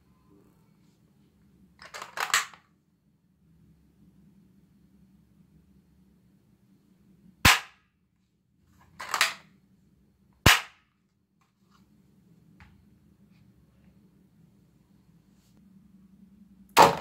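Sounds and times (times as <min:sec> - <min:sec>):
toy gun bangs: 0:07.5 - 0:07.8, 0:10.4 - 0:10.8, 0:16.8 - 0:17.0.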